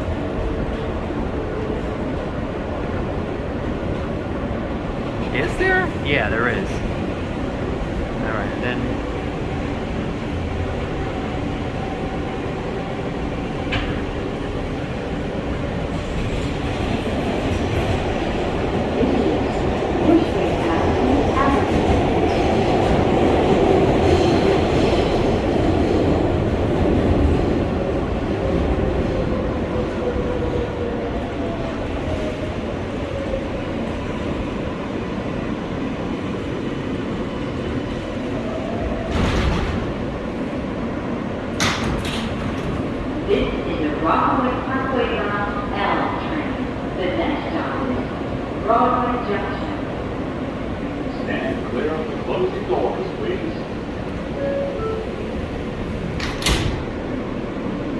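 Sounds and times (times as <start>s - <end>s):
subway train wheels rumbling on rail: 0.0s - 57.9s.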